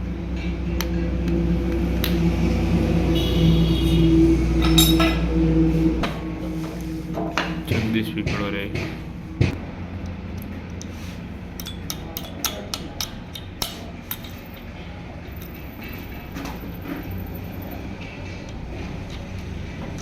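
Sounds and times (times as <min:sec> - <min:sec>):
steady low hum: 0:00.0 - 0:20.0
metal tools clinking: 0:04.6 - 0:05.2.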